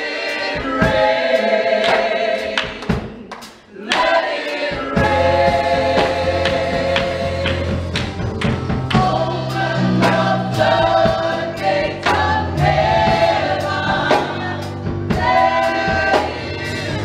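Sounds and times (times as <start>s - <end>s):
gospel choir singing: 0.0s - 17.0s.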